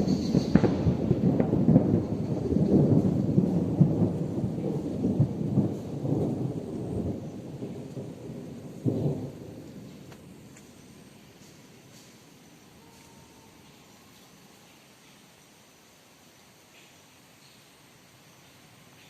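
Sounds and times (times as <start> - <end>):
thunder rolling and rumbling: 0.0 - 11.8.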